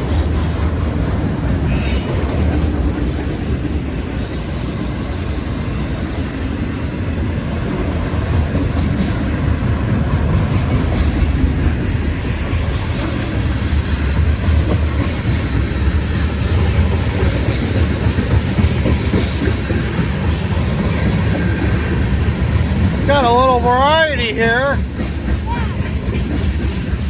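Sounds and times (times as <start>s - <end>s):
train wheels rumbling on rails: 0.0s - 27.0s
high wheel squeal: 4.1s - 6.6s, 12.0s - 13.9s.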